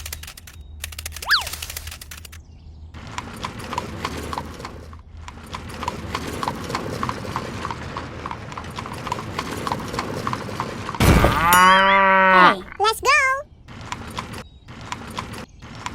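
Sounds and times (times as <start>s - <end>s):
clip-clop knocking: 3.0s - 11.8s, 13.7s - 15.9s.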